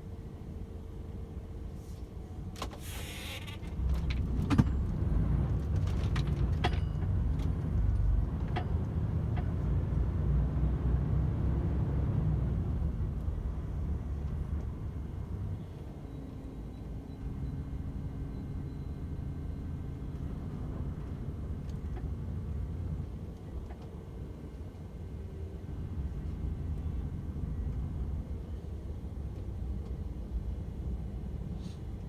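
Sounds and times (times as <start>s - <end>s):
truck engine and road rumble: 0.0s - 32.0s
brief air hiss: 2.8s - 3.6s, 31.6s - 31.8s.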